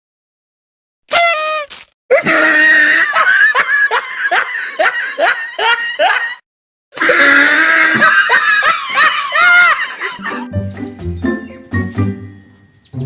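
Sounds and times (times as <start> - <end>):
loud falling laughs: 2.1 - 6.4, 7.0 - 10.5.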